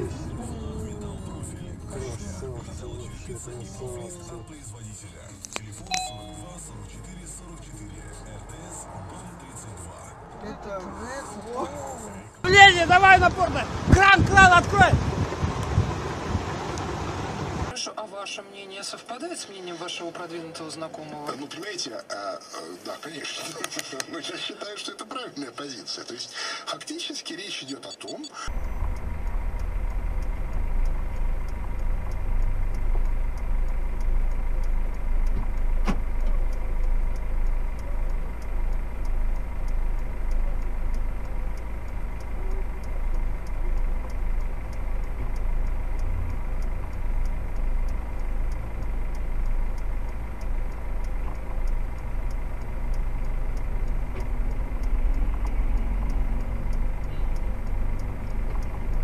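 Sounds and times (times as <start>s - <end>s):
vehicle engine idling: 0.0s - 17.7s, 28.5s - 59.0s
faint regular ticking: 27.9s - 59.0s.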